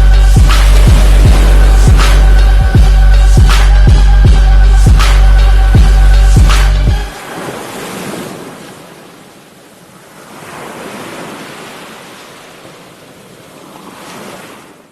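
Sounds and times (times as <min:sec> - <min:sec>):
music with heavy bass beat: 0:00.0 - 0:07.2
ocean surf washing onto beach: 0:07.2 - 0:14.8.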